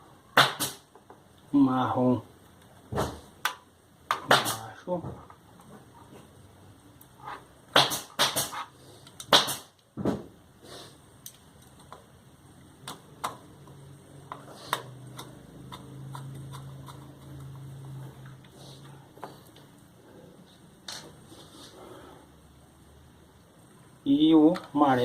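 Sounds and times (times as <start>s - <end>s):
light ticks of small parts: 11.2s - 12.1s
sharp clicks and knocks: 12.8s - 18.5s.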